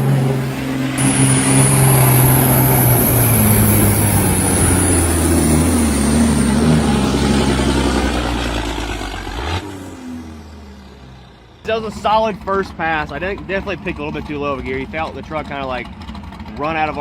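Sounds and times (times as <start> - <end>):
high whine: 0.0 - 9.4
diesel truck engine at full throttle: 0.0 - 17.0.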